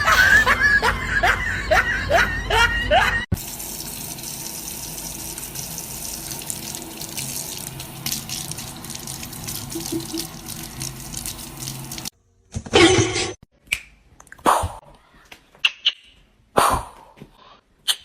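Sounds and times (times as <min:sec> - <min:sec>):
tap water running into sink: 0:03.4 - 0:12.1.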